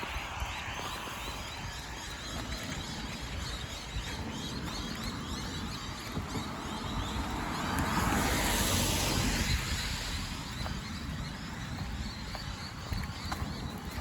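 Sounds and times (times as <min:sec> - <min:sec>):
steady low rumble: 0:00.0 - 0:14.0
car tyres hissing on wet road: 0:04.5 - 0:12.3.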